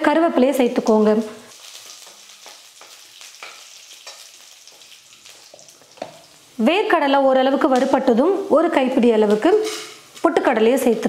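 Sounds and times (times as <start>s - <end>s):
food sizzling in hot oil: 0.5s - 11.0s
metal spatula scraping pan: 9.4s - 10.1s.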